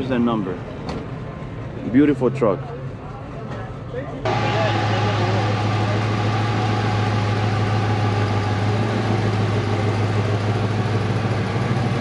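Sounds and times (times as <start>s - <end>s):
car engine idling: 4.3s - 12.0s.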